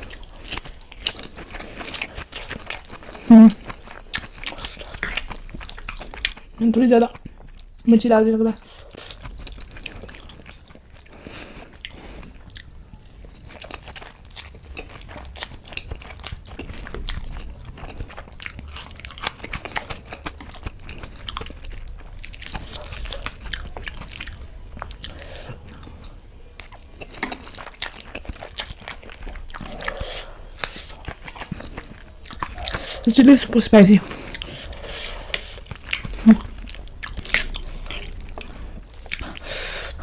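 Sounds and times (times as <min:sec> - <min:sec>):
person chewing food: 0:00.0 - 0:07.9, 0:08.5 - 0:40.0.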